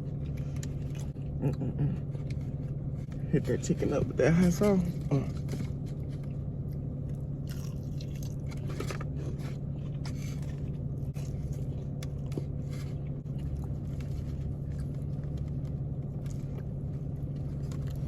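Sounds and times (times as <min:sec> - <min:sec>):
person chewing crispy food: 0:00.0 - 0:03.4, 0:05.0 - 0:18.0
low hum: 0:00.0 - 0:18.0.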